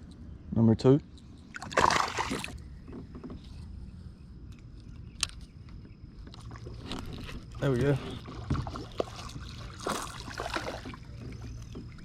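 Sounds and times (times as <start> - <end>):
water splash: 1.5 - 2.6, 8.4 - 11.2.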